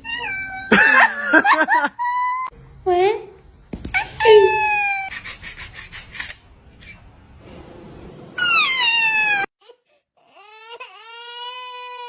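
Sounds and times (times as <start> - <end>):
cat yowling: 4.2 - 5.1, 8.4 - 9.5.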